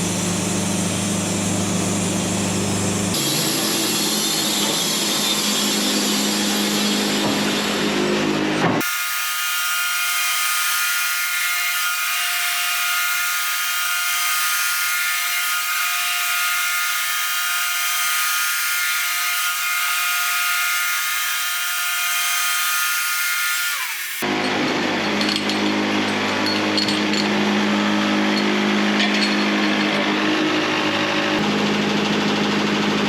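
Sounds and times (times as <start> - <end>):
circular saw blade whining: 0.1 - 25.6.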